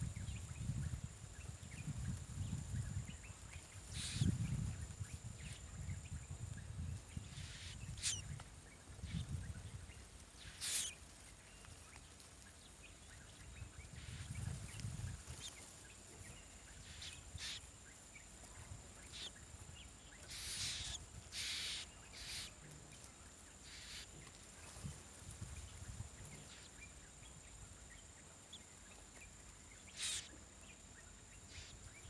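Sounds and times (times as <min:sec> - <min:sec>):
bird harsh rasping calls: 0:03.9 - 0:04.3, 0:07.3 - 0:08.2, 0:10.4 - 0:11.0, 0:16.8 - 0:17.6, 0:19.0 - 0:19.3, 0:20.3 - 0:22.6, 0:23.6 - 0:24.1, 0:29.9 - 0:30.3, 0:31.5 - 0:31.8.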